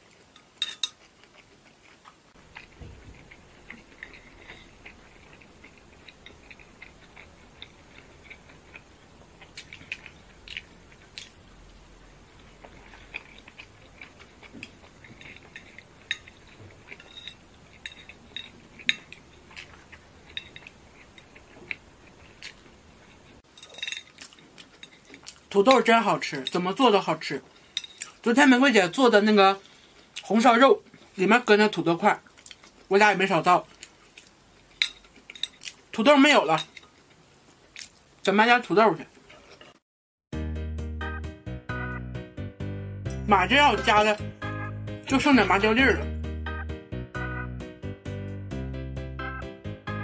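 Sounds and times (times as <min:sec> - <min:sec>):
chewing crunchy food: 0:00.0 - 0:11.5, 0:12.3 - 0:26.5, 0:32.2 - 0:32.9, 0:33.6 - 0:36.0, 0:36.6 - 0:38.1.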